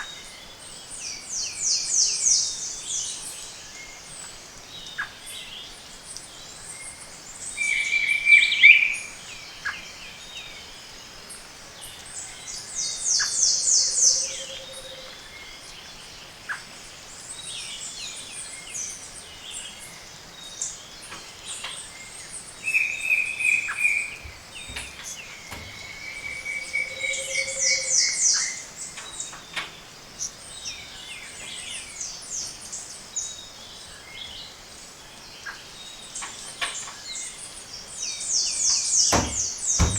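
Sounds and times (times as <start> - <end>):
forest birds calling: 0.0 - 39.9
bird whistle and high trill: 25.9 - 28.6.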